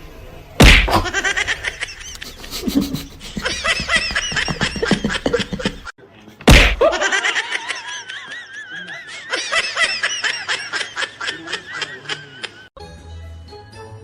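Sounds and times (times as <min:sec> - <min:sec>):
people laughing: 0:01.0 - 0:05.9, 0:06.8 - 0:12.7.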